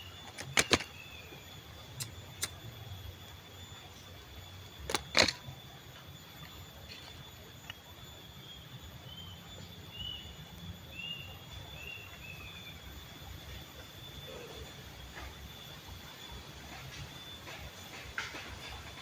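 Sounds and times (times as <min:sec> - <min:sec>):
sharp clicks: 0:00.2 - 0:01.0, 0:04.9 - 0:05.5.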